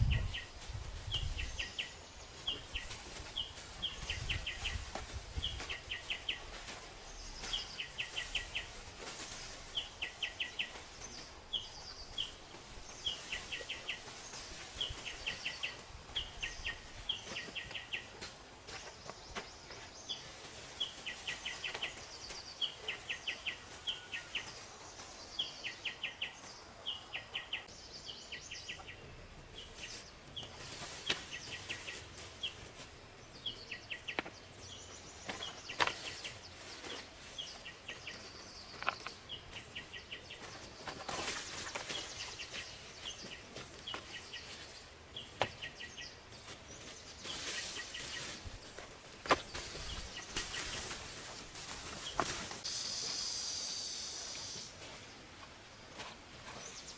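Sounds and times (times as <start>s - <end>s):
bird chirp trills: 52.6s - 54.8s.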